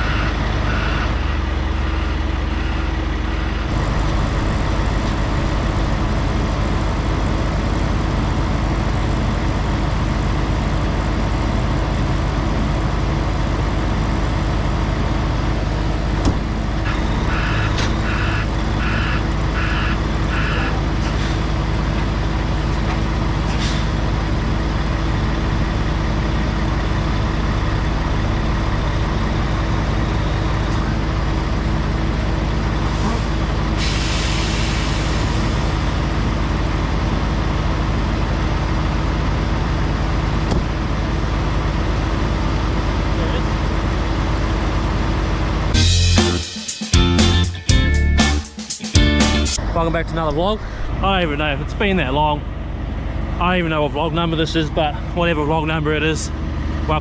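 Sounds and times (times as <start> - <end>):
reversing beeper: 0.0 - 7.4, 16.9 - 20.9
diesel truck engine running: 0.0 - 48.4, 49.0 - 57.0
short air hisses: 32.9 - 35.8.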